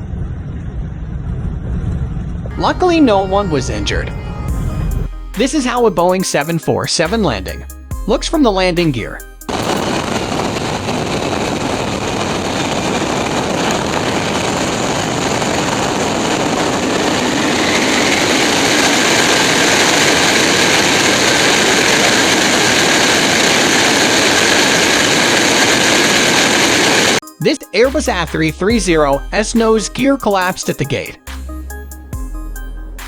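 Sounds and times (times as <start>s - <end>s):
high whine: 2.5s - 6.2s, 9.0s - 27.8s
airflow and jet engine noise: 9.5s - 27.2s.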